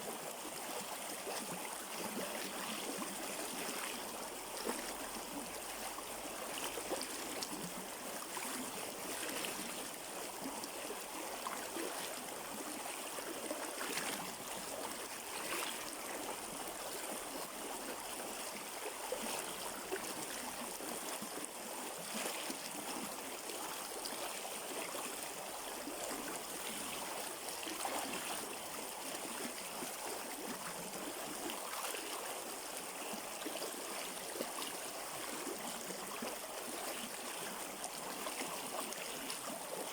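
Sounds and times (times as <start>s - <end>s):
water splashing and gurgling: 25.8s - 32.3s.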